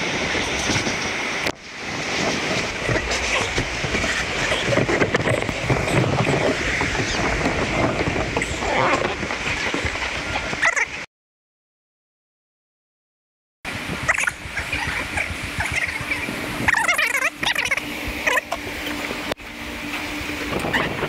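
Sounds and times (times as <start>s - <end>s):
boat rattling over wooden planks: 0.0s - 11.0s.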